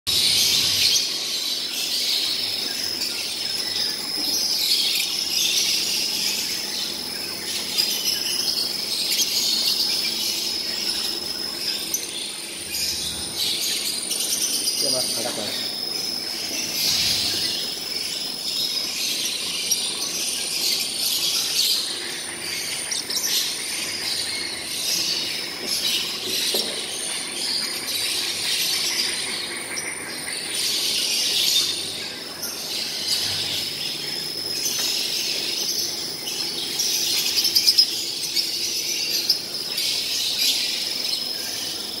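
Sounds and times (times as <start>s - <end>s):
flock of birds chattering and screeching: 0.1s - 42.0s.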